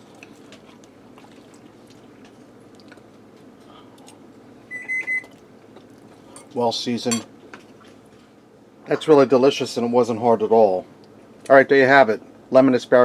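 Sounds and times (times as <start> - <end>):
person chewing: 0.0 - 4.3.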